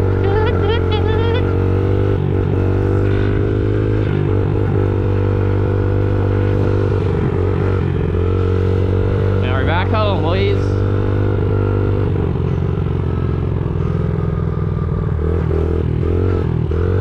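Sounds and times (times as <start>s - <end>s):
small dirtbike engine running: 0.0s - 3.6s.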